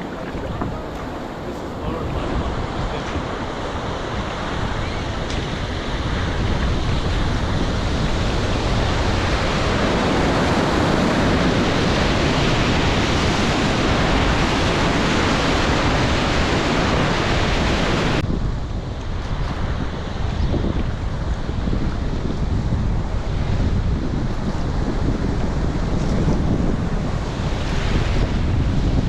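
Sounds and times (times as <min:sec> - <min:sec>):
river water rushing: 0:00.0 - 0:06.6
wind buffeting microphone: 0:00.0 - 0:29.0.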